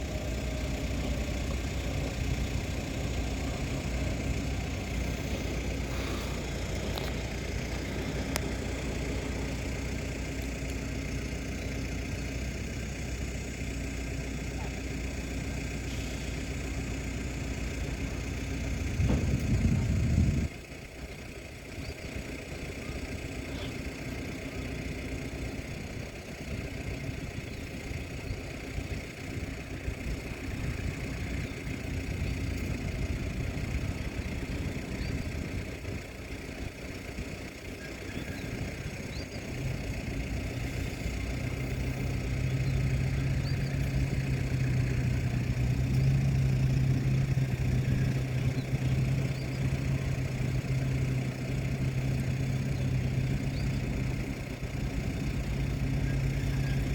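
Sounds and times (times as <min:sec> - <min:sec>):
boat diesel engine running: 0:00.0 - 0:56.9
deep steady drone: 0:00.0 - 0:56.9
low rumble: 0:18.6 - 0:20.6.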